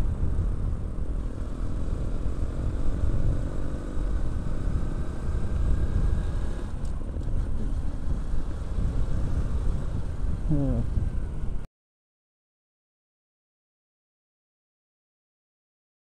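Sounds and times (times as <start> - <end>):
wind on the microphone: 0.0 - 1.3, 4.5 - 11.7
motorcycle engine running: 0.0 - 11.6.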